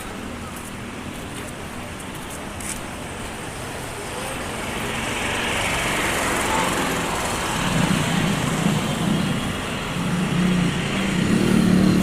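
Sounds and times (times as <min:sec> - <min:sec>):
road traffic noise: 0:00.0 - 0:12.0
vehicle approaching: 0:03.3 - 0:12.0.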